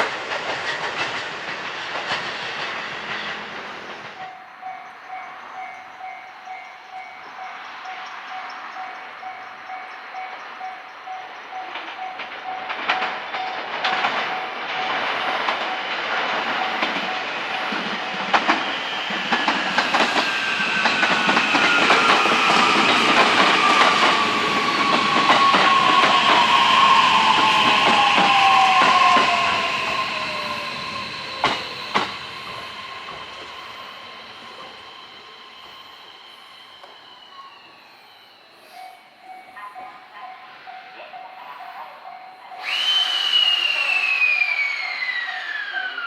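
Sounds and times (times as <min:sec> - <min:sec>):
wheels clattering on rail joints: 0:00.0 - 0:08.8, 0:10.2 - 0:35.0
train inverter whine: 0:00.0 - 0:46.0.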